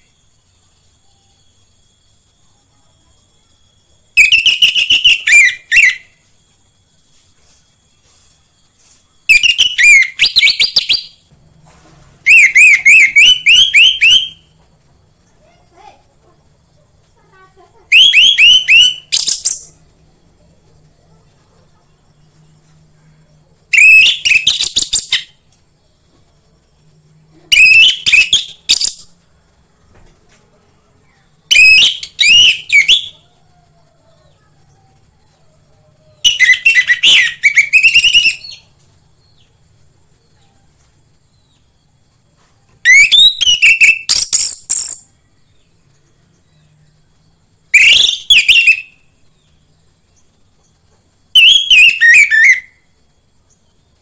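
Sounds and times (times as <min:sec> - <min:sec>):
thrush singing whistled trills: 0:03.3 - 0:11.3, 0:12.2 - 0:14.6, 0:17.9 - 0:19.8, 0:23.7 - 0:26.1, 0:27.3 - 0:29.2, 0:31.4 - 0:33.9, 0:36.0 - 0:39.5, 0:42.8 - 0:45.8, 0:46.4 - 0:50.2, 0:51.3 - 0:53.8.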